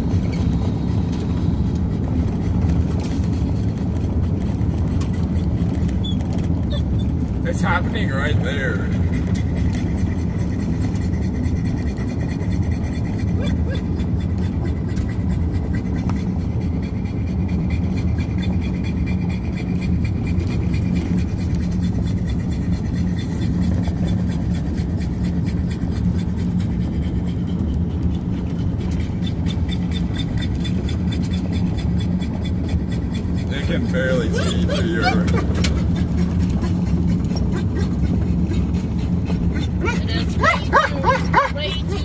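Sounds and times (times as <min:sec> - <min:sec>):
vehicle engine and road noise: 0:00.0 - 0:42.0.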